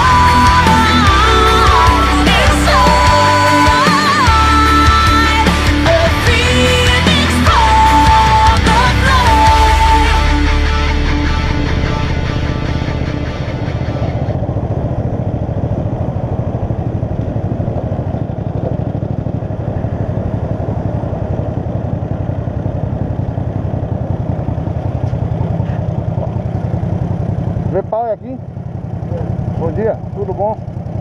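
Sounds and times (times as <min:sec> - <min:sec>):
background music: 0:00.0 - 0:14.4
motorcycle engine running: 0:00.0 - 0:31.0.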